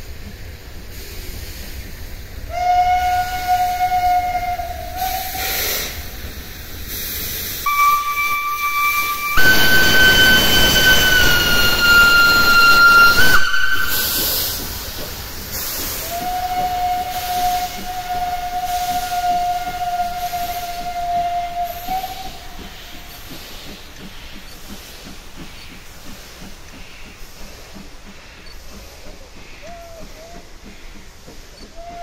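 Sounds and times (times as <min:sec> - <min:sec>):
steam hissing: 0:00.0 - 0:32.0
steam locomotive whistle: 0:02.5 - 0:06.1, 0:07.6 - 0:14.7, 0:15.8 - 0:23.4, 0:31.6 - 0:32.0.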